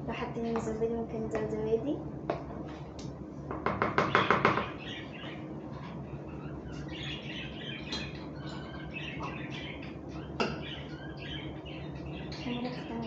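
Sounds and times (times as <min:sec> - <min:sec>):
small birds chirping: 0:03.8 - 0:13.0.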